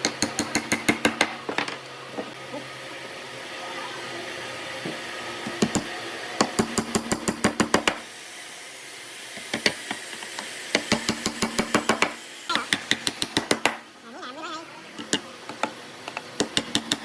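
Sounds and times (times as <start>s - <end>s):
hammering on wood: 0.0s - 1.6s, 5.5s - 8.0s, 10.7s - 13.8s, 16.4s - 17.0s.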